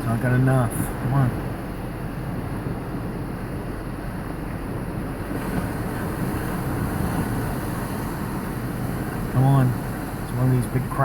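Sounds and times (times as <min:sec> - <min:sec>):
wind buffeting microphone: 0:00.0 - 0:11.0
ocean surf breaking: 0:03.5 - 0:11.0.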